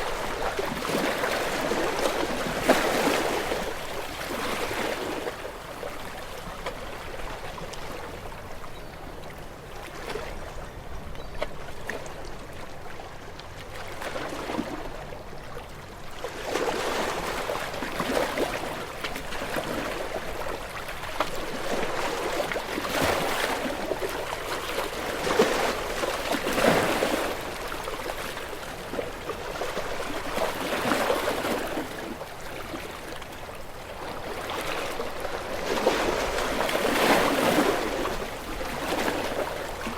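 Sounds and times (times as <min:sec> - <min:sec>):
sea waves washing onto shore: 0:00.0 - 0:06.7.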